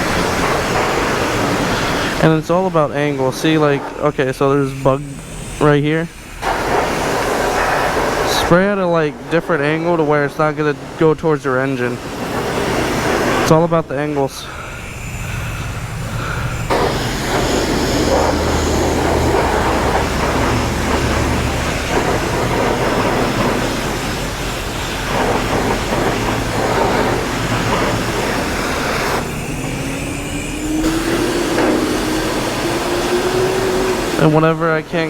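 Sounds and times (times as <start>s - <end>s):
high-pressure water spray hissing: 0.0s - 35.0s
low pump hum: 0.0s - 35.0s.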